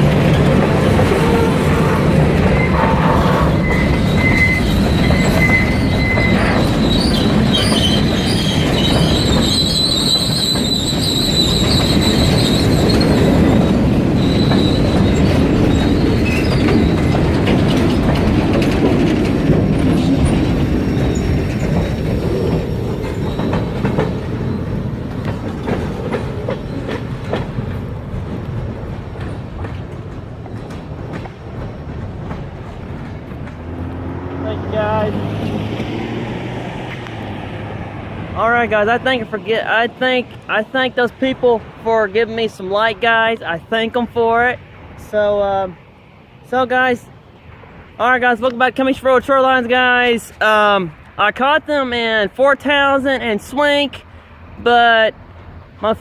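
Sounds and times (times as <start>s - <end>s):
high wheel squeals: 0.0s - 18.1s, 19.8s - 24.9s
train wheels rumbling on rails: 0.0s - 45.8s.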